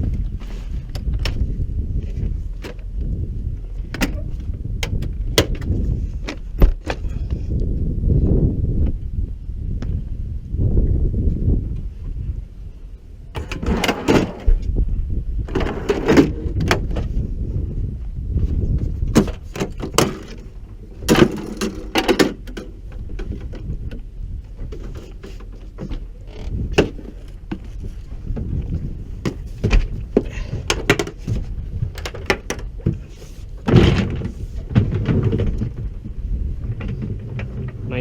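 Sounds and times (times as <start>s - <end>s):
steady low rumble: 0.0s - 38.0s
equipment and doors clunking: 13.3s - 14.6s, 19.1s - 24.0s.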